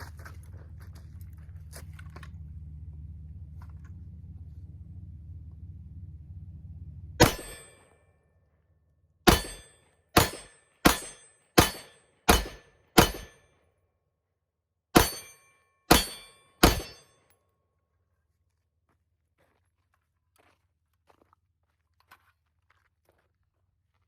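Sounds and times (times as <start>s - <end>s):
gunshots: 7.2s - 7.9s, 9.3s - 13.4s, 15.0s - 17.0s.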